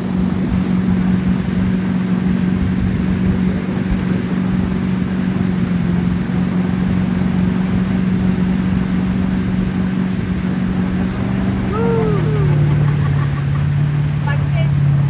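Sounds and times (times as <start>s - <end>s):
boat engine running: 0.0s - 15.0s
wind and water rushing: 0.0s - 15.0s
rising and falling tone: 11.1s - 14.0s.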